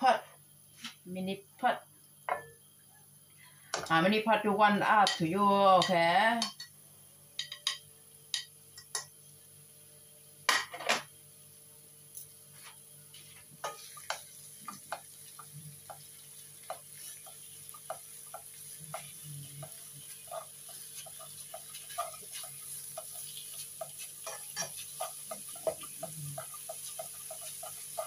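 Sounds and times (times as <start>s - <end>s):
meat frying with crackling pops: 5.0s - 28.0s
plastic spatula stirring meat: 13.8s - 28.0s.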